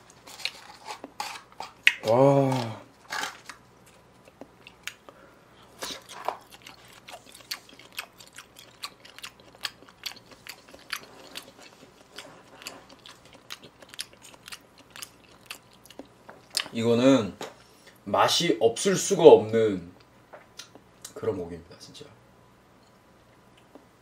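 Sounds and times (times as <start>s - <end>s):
person chewing: 0.0s - 16.8s.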